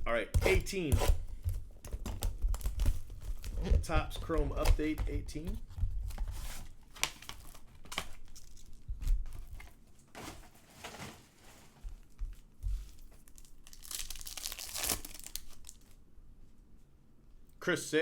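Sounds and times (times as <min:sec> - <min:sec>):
plastic packaging crinkling and ripping: 0:01.8 - 0:11.8, 0:12.9 - 0:16.0.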